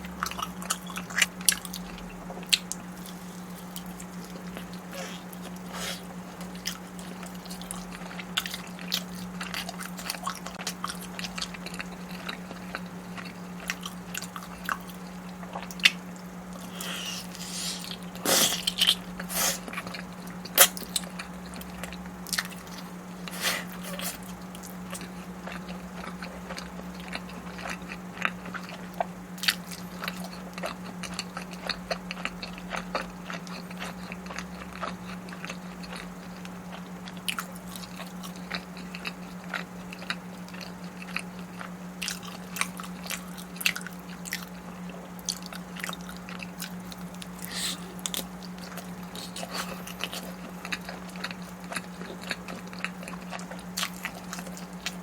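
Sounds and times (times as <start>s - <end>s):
steady low hum: 0.0s - 55.0s
food crunching: 0.1s - 55.0s
person chewing food: 0.2s - 55.0s.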